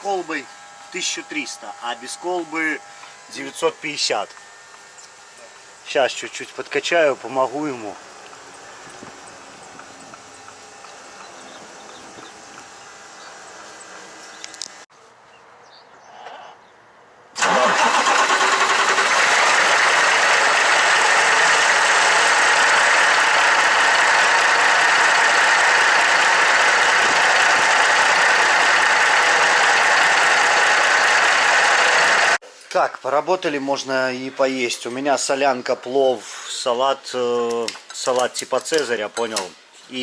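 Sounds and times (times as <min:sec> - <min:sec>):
truck diesel engine starting and running: 0:17.4 - 0:32.4.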